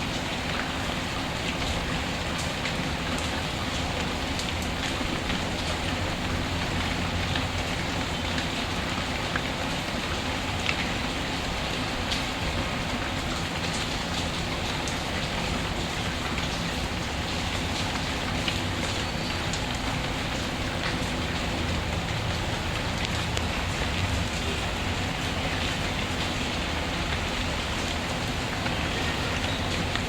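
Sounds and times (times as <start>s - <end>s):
rain hissing: 0.0s - 30.0s.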